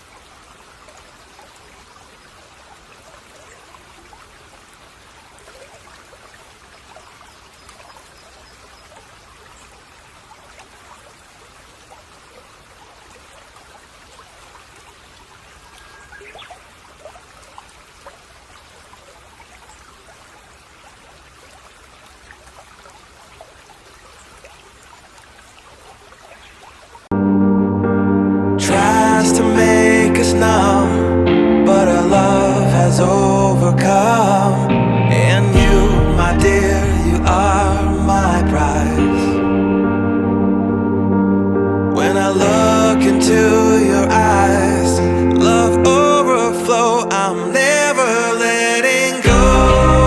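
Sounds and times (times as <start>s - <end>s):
brook babbling: 0.0s - 27.1s, 28.8s - 41.1s, 42.0s - 50.0s
music: 27.1s - 50.0s.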